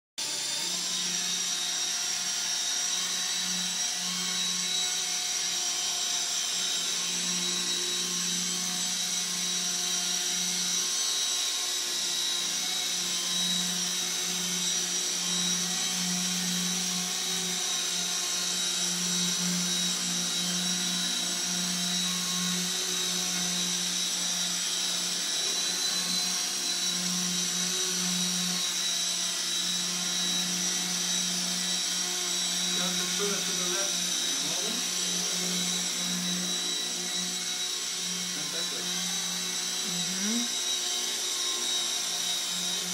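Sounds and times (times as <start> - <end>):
high-pitched motor whine: 0.2 - 42.9
low rotor hum: 12.9 - 41.4.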